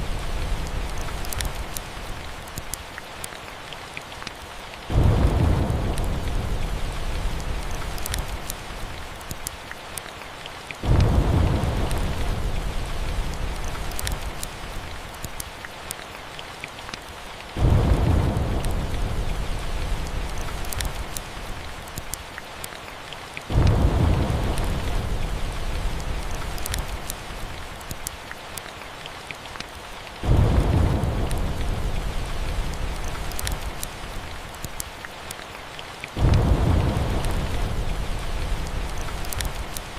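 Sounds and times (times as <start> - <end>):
steady rain: 0.0 - 39.9
wood fire crackling: 0.0 - 39.9
rolling thunder: 4.9 - 8.8, 10.8 - 13.9, 17.6 - 21.2, 23.5 - 27.0, 30.2 - 33.8, 36.2 - 39.8.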